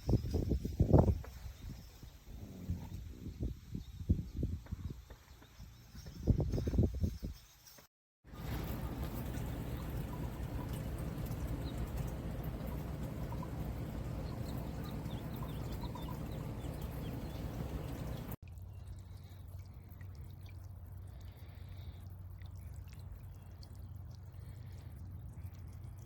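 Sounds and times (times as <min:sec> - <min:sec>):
water splashing and dripping: 0:08.3 - 0:26.0.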